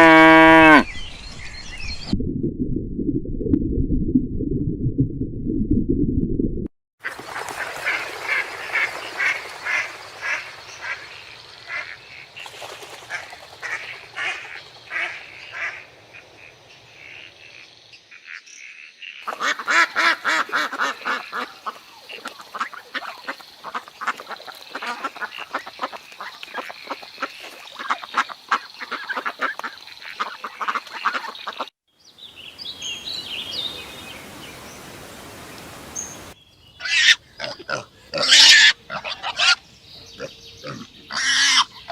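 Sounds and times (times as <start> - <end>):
ducks quacking: 7.0 - 12.2, 13.0 - 17.6, 19.2 - 31.7, 40.6 - 41.9.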